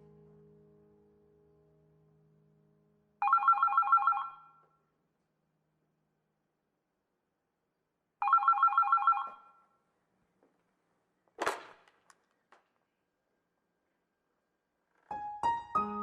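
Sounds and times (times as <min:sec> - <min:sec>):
telephone bell ringing: 0:03.2 - 0:04.6, 0:08.2 - 0:09.6.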